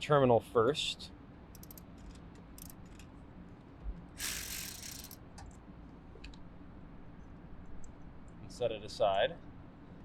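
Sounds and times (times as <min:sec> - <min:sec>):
ratchet clicking and rasping: 0:01.6 - 0:03.0, 0:04.2 - 0:05.2.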